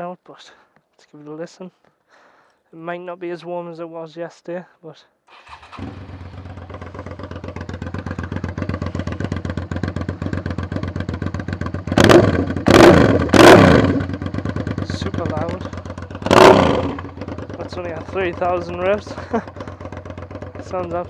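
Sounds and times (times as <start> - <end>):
motorcycle engine idling and revving: 5.3 - 21.0.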